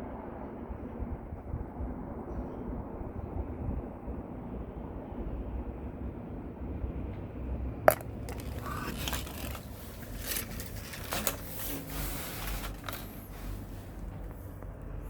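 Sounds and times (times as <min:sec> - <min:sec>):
clicking and scraping: 0:07.9 - 0:14.7.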